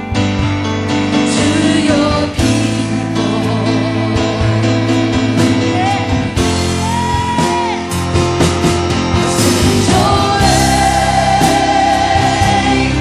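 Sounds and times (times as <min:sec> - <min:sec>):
guitar: 0:00.0 - 0:13.0
worship band music: 0:00.0 - 0:13.0
voices singing held notes: 0:01.3 - 0:07.8, 0:09.4 - 0:13.0.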